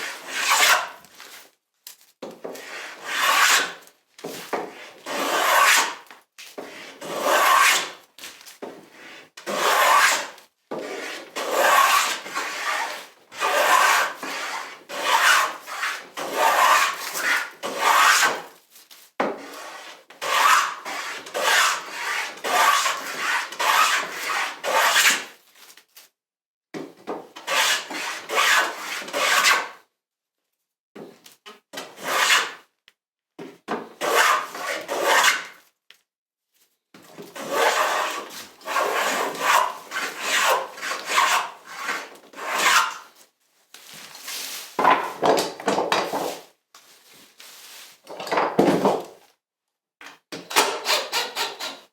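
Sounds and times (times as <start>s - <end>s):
hand tool rasping on wood: 5.1s - 5.9s, 13.4s - 18.3s, 37.4s - 43.0s, 50.8s - 51.8s.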